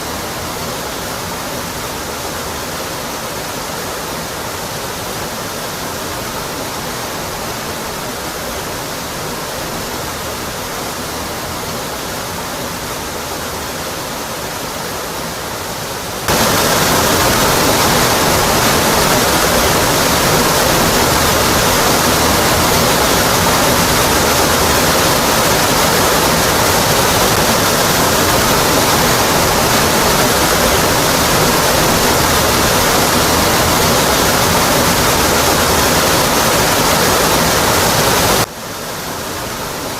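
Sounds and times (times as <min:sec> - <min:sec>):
waterfall rushing onto rock: 0:16.1 - 0:39.9.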